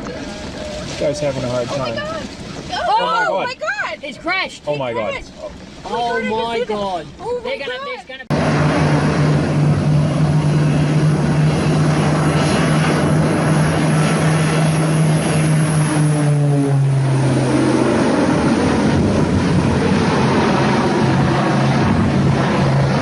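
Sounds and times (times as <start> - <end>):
propeller aircraft engine droning: 0.0 - 23.0
rushing noise: 8.3 - 23.0.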